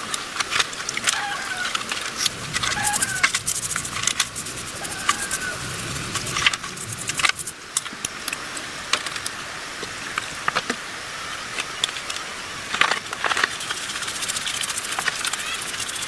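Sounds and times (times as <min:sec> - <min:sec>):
steady hiss: 0:00.0 - 0:16.0
metal parts and tools clicking: 0:02.2 - 0:08.4, 0:12.7 - 0:16.0.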